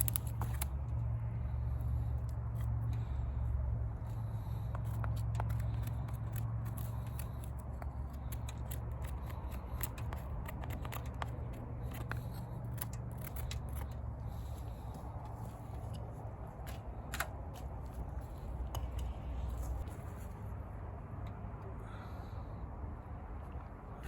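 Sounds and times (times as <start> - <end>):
wood fire crackling and popping: 0.0 - 0.7.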